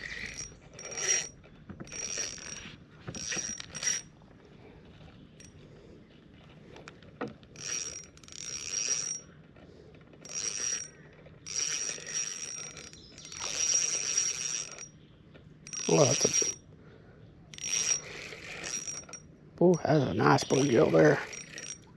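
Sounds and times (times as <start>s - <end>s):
fishing reel gears whirring: 0.0s - 4.2s, 7.5s - 9.4s, 10.0s - 15.0s, 15.6s - 16.6s, 17.5s - 21.9s.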